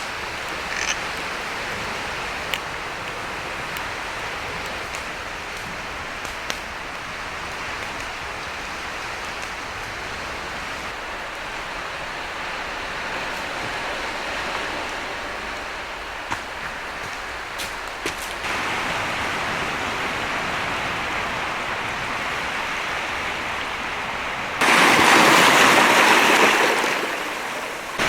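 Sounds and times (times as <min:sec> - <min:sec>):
campfire popping and crackling: 0:00.0 - 0:11.4
sea surf rushing: 0:00.0 - 0:28.0.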